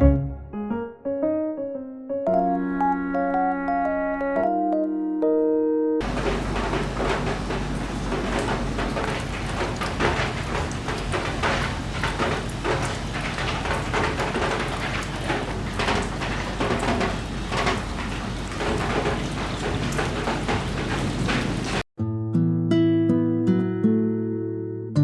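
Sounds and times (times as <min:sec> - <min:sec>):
plucked acoustic guitar music: 0:00.0 - 0:00.9, 0:22.0 - 0:25.0
steady rain falling: 0:06.0 - 0:21.8.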